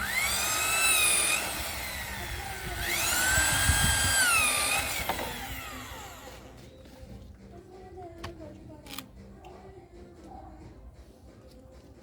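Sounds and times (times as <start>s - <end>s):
electric drill whining: 0.0s - 6.6s.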